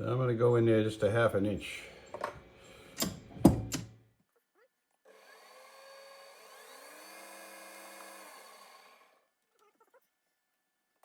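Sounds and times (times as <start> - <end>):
lathe motor whine: 5.2 - 9.2.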